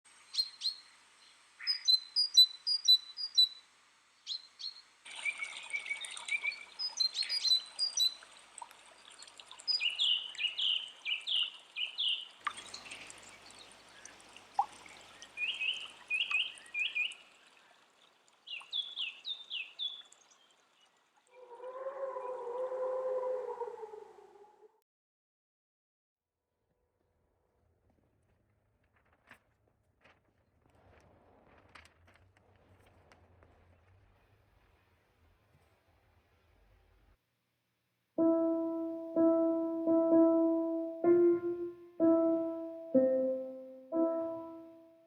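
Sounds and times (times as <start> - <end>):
birds chirping songs: 0.3 - 3.6, 4.2 - 22.8.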